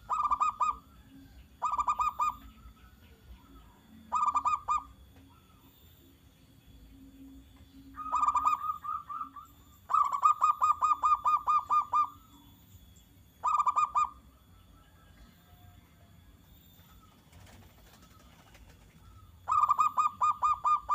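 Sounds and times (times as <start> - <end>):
dove cooing: 0.0 - 5.7, 7.9 - 12.4, 13.4 - 15.8, 16.8 - 20.9.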